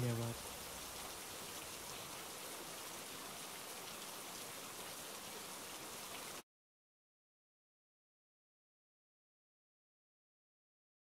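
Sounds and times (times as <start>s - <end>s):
steady rain: 0.0s - 6.4s.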